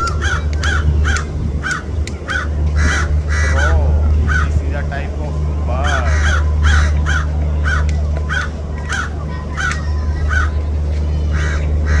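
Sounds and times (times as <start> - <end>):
macaw squawking: 0.0 - 4.7, 5.8 - 10.6
steady low hum: 0.0 - 12.0.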